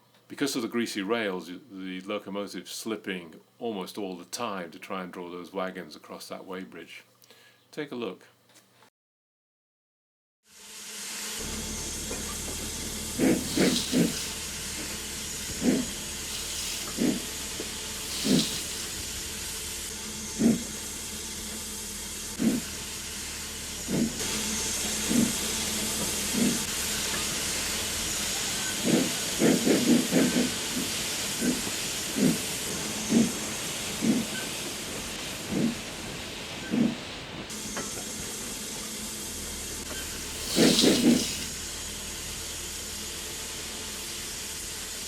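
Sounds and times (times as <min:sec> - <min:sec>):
steam hissing: 0:10.6 - 0:45.0
steam locomotive exhaust beats: 0:10.8 - 0:45.0
rapid chuffs of wheels slipping: 0:11.4 - 0:21.6, 0:22.3 - 0:37.5, 0:40.1 - 0:41.6.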